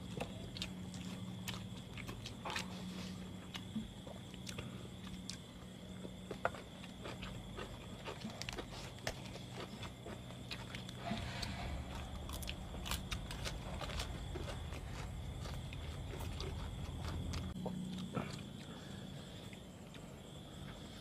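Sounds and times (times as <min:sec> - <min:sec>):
chewing and biting food: 0:00.0 - 0:21.0
steady low hum: 0:00.0 - 0:21.0.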